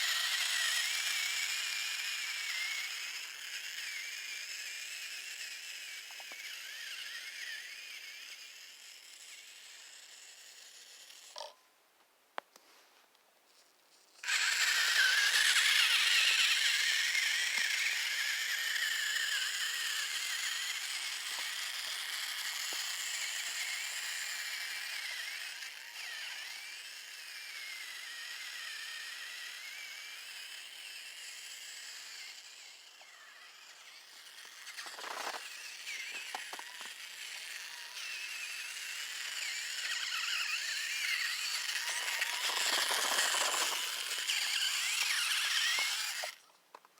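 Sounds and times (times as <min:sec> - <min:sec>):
toy truck electric motor whining: 0:00.0 - 0:11.6, 0:13.5 - 0:46.5.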